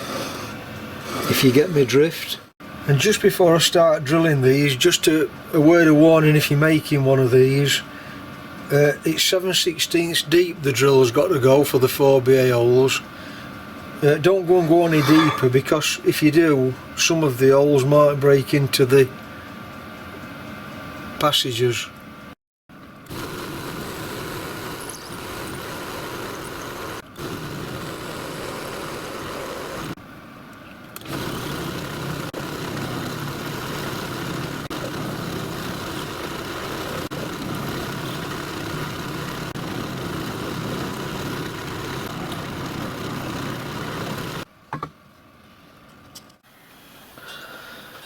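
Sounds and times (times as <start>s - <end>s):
bench drill drilling metal: 14.6s - 15.6s.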